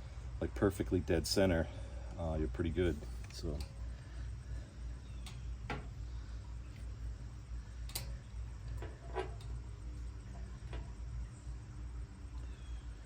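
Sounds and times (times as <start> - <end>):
steady low hum: 0.0 - 13.0
metal hardware clicking and tapping: 7.8 - 9.6.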